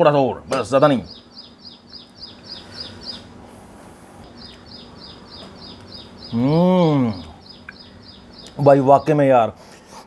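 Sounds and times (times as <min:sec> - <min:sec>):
small bird chirping: 0:00.6 - 0:03.4, 0:04.2 - 0:09.2.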